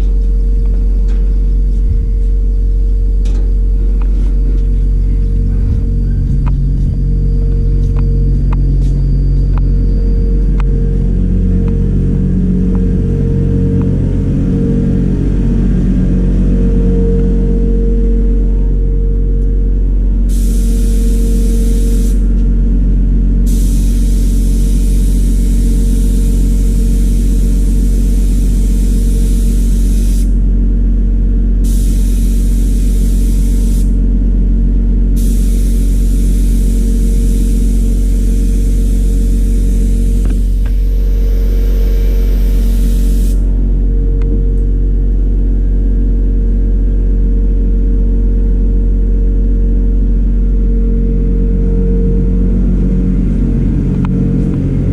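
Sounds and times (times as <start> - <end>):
motor humming and rumbling: 0.0 - 54.9
water spray hissing: 20.3 - 22.2, 23.5 - 30.4, 35.2 - 43.4.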